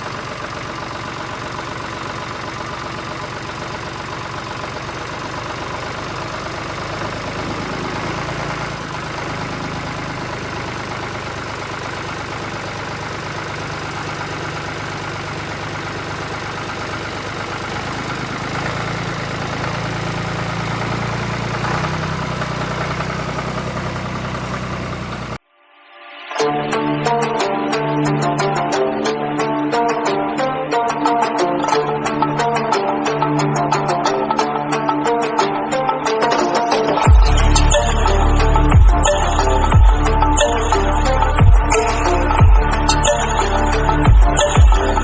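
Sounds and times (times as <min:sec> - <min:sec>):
vehicle engine idling: 0:00.0 - 0:25.4, 0:37.0 - 0:45.0.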